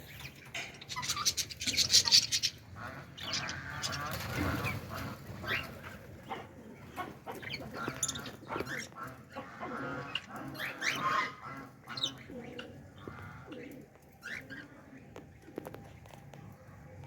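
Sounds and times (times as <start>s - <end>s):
budgerigars chirping: 0.9s - 4.8s.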